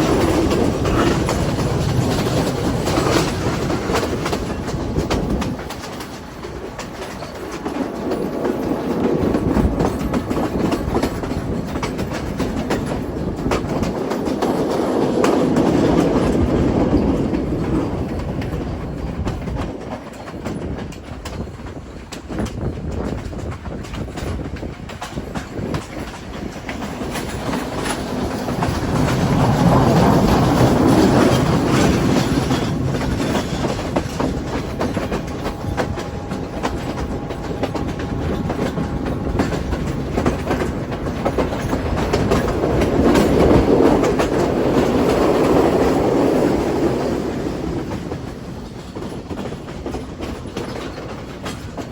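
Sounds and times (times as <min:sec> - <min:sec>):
train rumbling: 0:00.0 - 0:51.9
wheels clacking over rail joints: 0:00.0 - 0:51.9.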